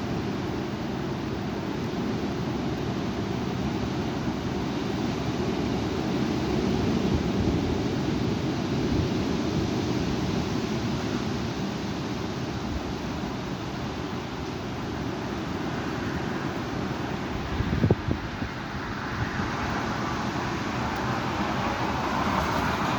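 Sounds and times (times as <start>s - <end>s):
strong wind buffeting microphone: 4.9s - 11.7s, 14.6s - 22.9s.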